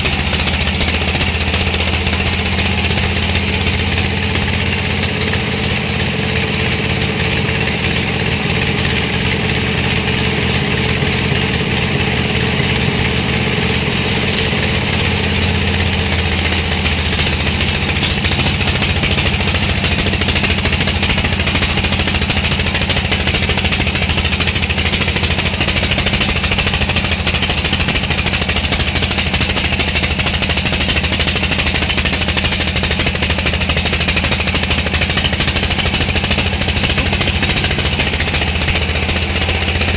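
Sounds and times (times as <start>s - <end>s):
harsh bright machine noise: 0.0s - 39.9s
sawmill machinery engine running: 0.0s - 39.9s.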